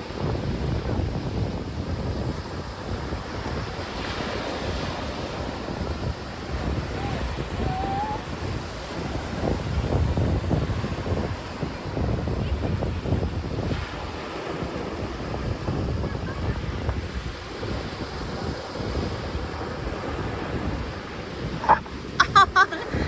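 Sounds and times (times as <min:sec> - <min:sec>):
sea waves: 0:00.0 - 0:23.0
wind buffeting microphone: 0:00.0 - 0:23.0
thin wavering whistle: 0:07.0 - 0:08.3.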